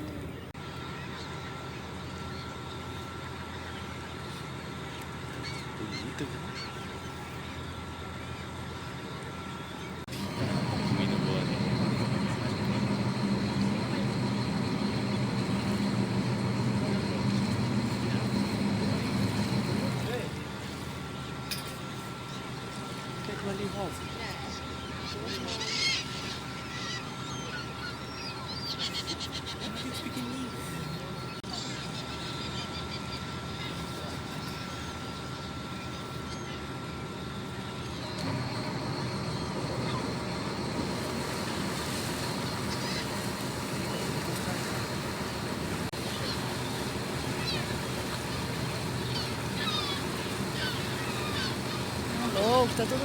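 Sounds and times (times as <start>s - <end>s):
boat engines low drone: 0.0s - 53.0s
high whine: 0.0s - 53.0s
wind: 0.0s - 53.0s
water noise: 7.9s - 22.0s, 37.4s - 53.0s.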